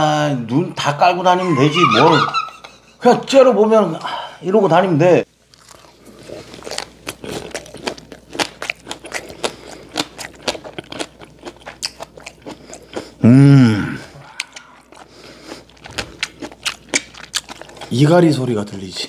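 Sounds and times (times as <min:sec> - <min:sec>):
crunching and chewing: 0:05.4 - 0:13.2, 0:14.2 - 0:18.4
person humming: 0:13.2 - 0:14.8.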